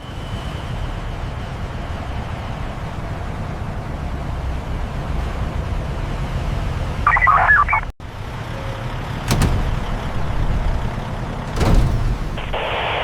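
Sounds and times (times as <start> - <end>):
low machinery rumble: 0.6 - 13.0
electronic beeping: 7.1 - 7.9.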